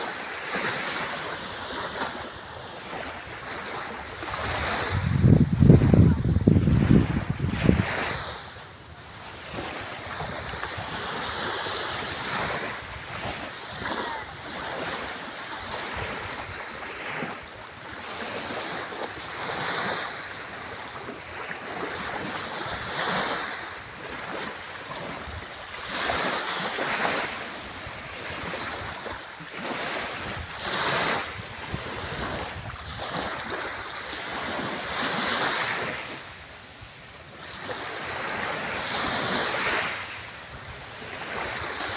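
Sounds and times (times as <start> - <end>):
sea waves breaking on shore: 0.0 - 41.9
wind on microphone: 4.0 - 8.6, 30.0 - 33.9.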